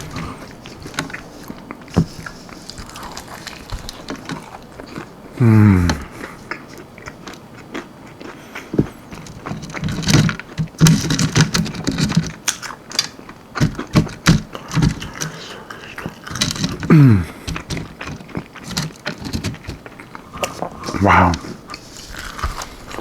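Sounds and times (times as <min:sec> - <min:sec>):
low hums of enjoyment: 0:00.0 - 0:07.2, 0:16.8 - 0:17.8, 0:20.1 - 0:22.6
mouth smacks: 0:00.0 - 0:09.1, 0:20.0 - 0:23.0
person chewing crunchy food: 0:00.0 - 0:23.0.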